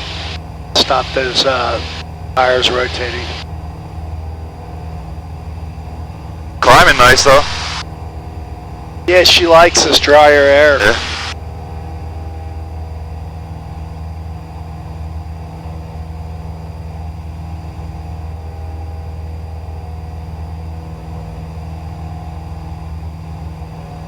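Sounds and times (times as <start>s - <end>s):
airplane propeller engine drone: 0.0s - 24.0s.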